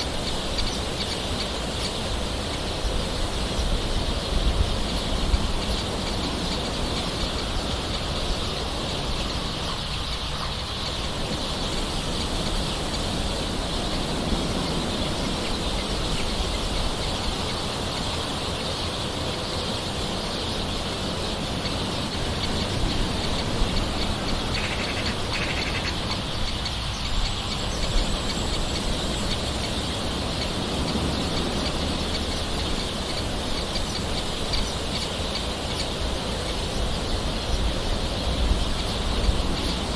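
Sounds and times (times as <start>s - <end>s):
birds calling: 0.0s - 39.9s.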